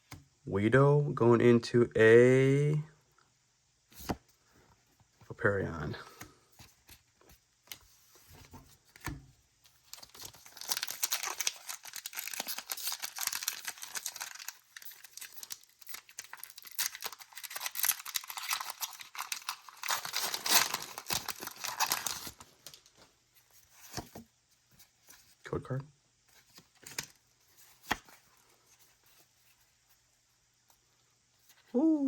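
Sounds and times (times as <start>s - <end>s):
foil wrapper crinkling and tearing: 9.7s - 22.9s.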